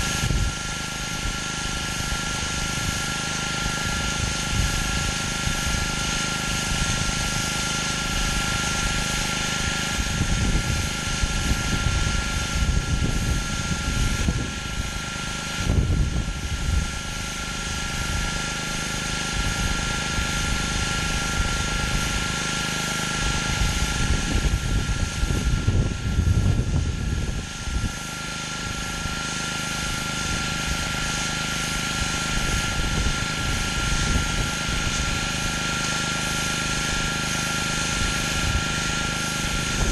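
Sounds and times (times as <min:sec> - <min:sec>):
high whine: 0:00.0 - 0:39.9
pressure washer engine running: 0:00.0 - 0:39.9
water spray hissing on concrete: 0:00.0 - 0:39.9
low rumbling: 0:23.3 - 0:28.0.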